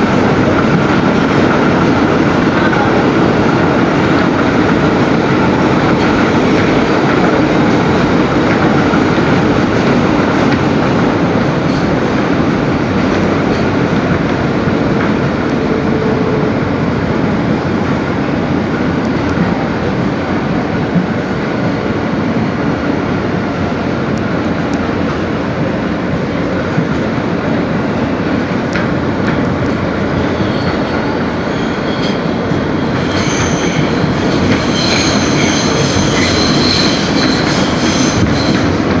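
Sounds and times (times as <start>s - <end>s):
subway train wheels rumbling: 0.0s - 39.0s
clickety-clack of track joints: 0.2s - 15.8s, 28.2s - 31.1s
high-pitched wheel squeal: 30.2s - 38.8s.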